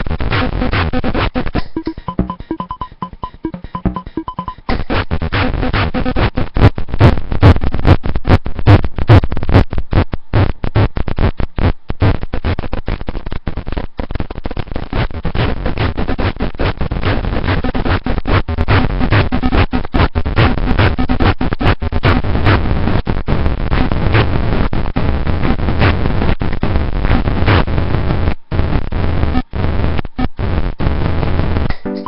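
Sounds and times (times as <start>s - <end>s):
distorted keyboard fuzz: 0.0s - 11.0s, 14.5s - 22.9s.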